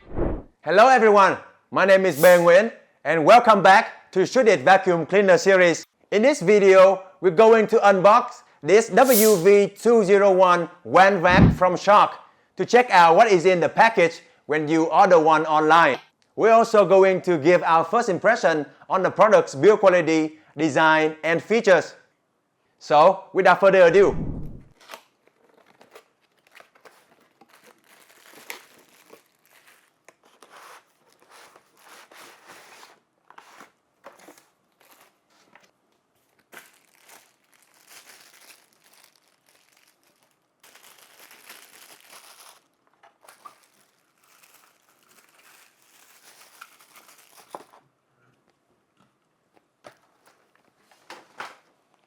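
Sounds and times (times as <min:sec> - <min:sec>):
cardboard and plastic rustling: 0:24.7 - 0:47.9, 0:49.8 - 0:52.0.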